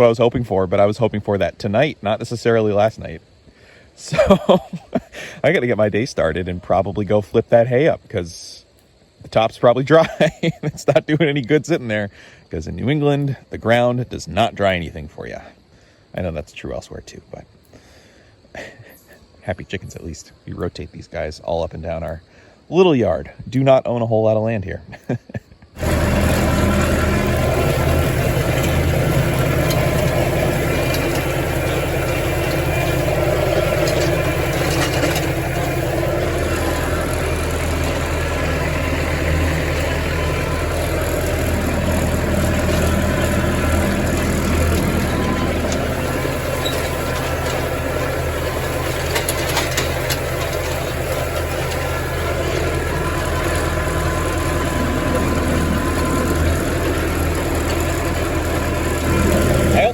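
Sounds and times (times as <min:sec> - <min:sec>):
tractor engine running: 0:00.0 - 0:10.5, 0:25.8 - 0:59.9.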